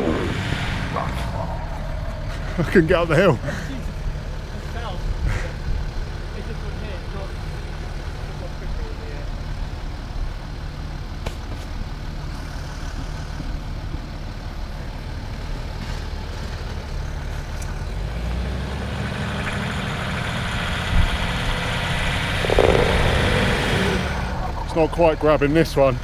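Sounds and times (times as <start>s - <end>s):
engine revving: 0.0s - 8.1s, 17.2s - 26.0s.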